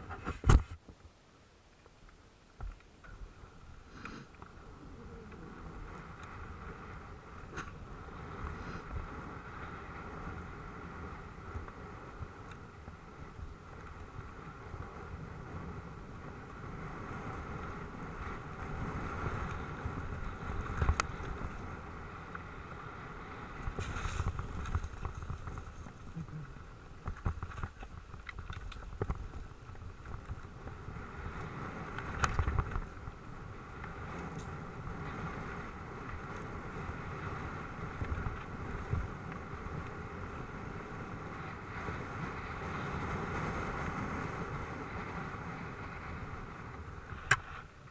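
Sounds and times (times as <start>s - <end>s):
wind on microphone: 3.2s - 47.9s
bike knocks and rattles: 23.6s - 26.2s, 26.9s - 30.5s.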